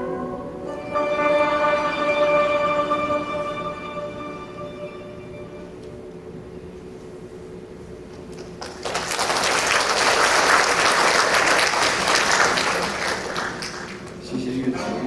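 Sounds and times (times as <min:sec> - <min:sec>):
faint steady hum: 0:00.0 - 0:15.0
audience applauding: 0:08.3 - 0:14.2.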